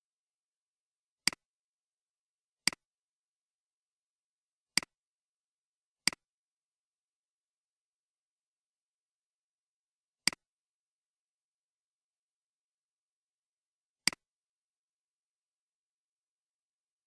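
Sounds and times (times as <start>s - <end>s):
mouse button clicks: 1.2s - 1.4s, 10.3s - 10.5s, 14.1s - 14.3s.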